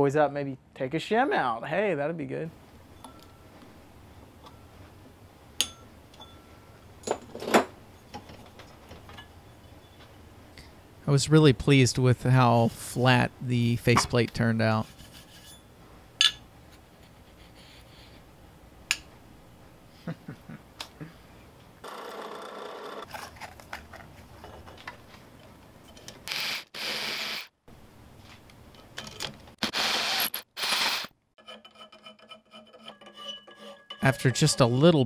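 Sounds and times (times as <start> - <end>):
rasping scraping strokes on metal: 14.8 - 15.7, 31.4 - 34.9.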